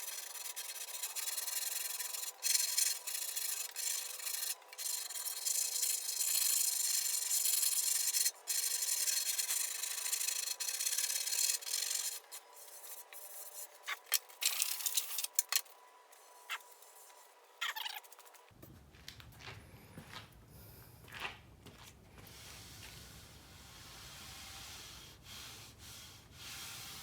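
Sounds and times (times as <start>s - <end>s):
abrasive scraping of body filler: 0.0s - 15.6s.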